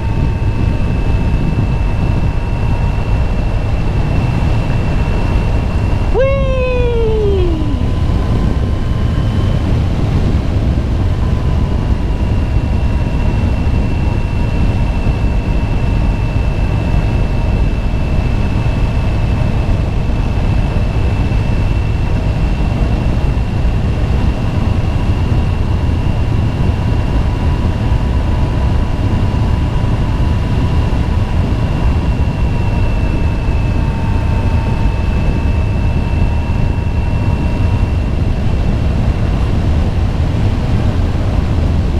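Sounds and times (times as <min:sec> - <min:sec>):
wind noise: 0:00.0 - 0:41.9.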